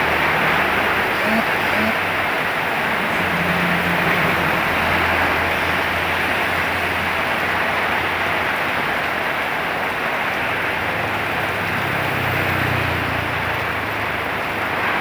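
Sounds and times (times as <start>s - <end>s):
heavy rain: 0.0s - 15.0s
low vehicle engine hum: 0.0s - 15.0s.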